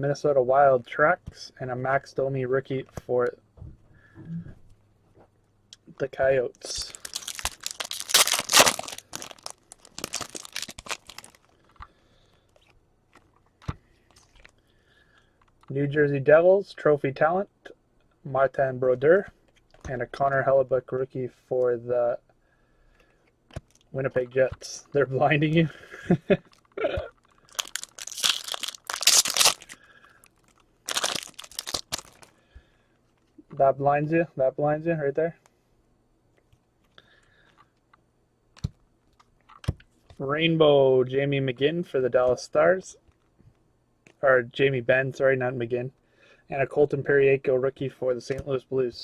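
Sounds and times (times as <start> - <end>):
wrapper being torn and crinkled: 6.7 - 11.6, 26.4 - 32.4.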